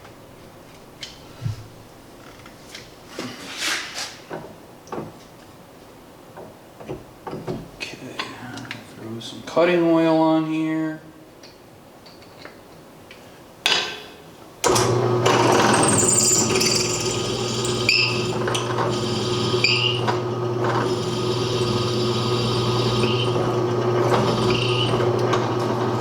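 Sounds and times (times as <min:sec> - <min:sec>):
drill bit squealing: 0:14.7 - 0:26.0
electric drill running: 0:14.7 - 0:26.0.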